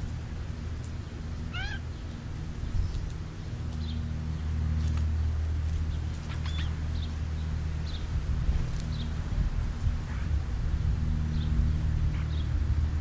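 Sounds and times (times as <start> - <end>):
steady low rumble: 0.0 - 13.0
high bird chirps: 6.2 - 7.2.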